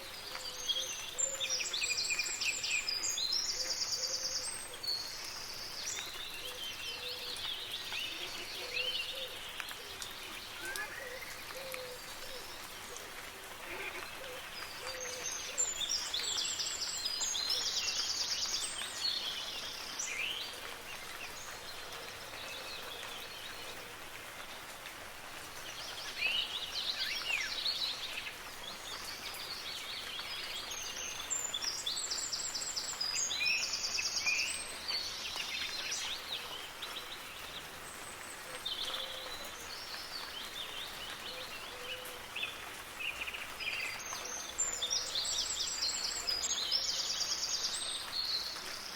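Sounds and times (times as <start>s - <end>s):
soft rain: 0.0s - 48.9s
songbirds singing: 0.0s - 48.9s.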